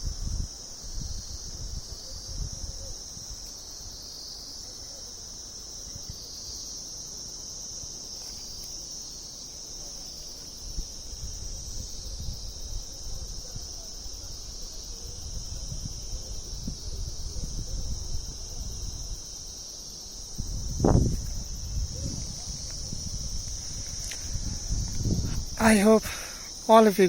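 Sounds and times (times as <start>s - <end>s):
wind rumbling on microphone: 0.0s - 3.4s, 10.6s - 19.5s, 20.1s - 26.4s
high-pitched insect chorus: 0.0s - 27.0s.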